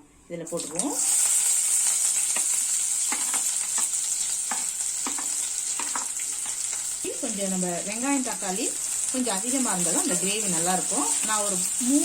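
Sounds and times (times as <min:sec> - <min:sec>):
onions sizzling in oil: 0:00.4 - 0:12.0.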